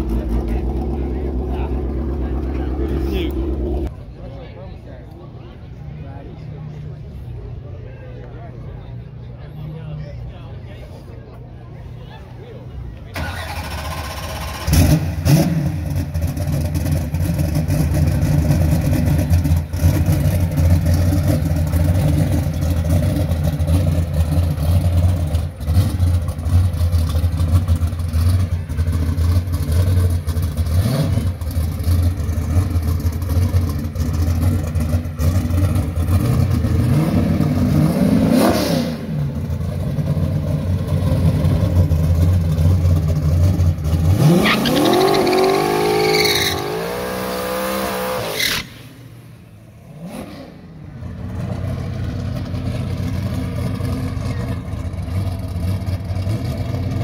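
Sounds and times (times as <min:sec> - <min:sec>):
car engine idling loud: 0:00.0 - 0:03.9, 0:51.1 - 0:57.0.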